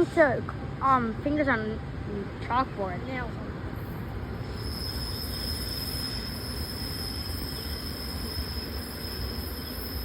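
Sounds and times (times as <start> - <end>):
train rumbling by: 0.0 - 10.0
high-pitched wheel squeal: 4.4 - 10.0.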